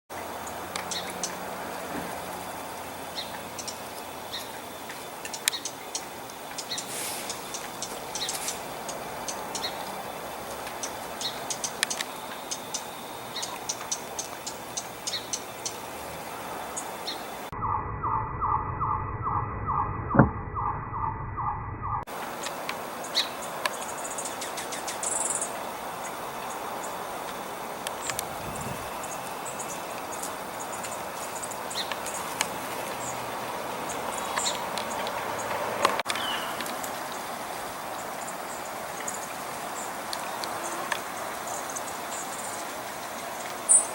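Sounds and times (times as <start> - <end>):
steady background hiss: 0.1 - 17.5, 22.1 - 43.9
small birds chirping: 0.3 - 1.9, 2.5 - 17.5, 22.4 - 27.1, 27.9 - 43.9
pulsing tone: 17.5 - 22.1.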